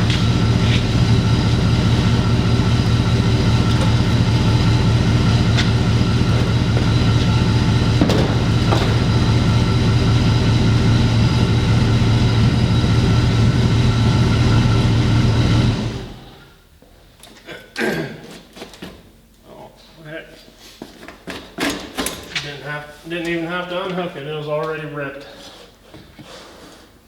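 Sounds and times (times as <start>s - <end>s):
engine running with low hum: 0.0s - 16.6s.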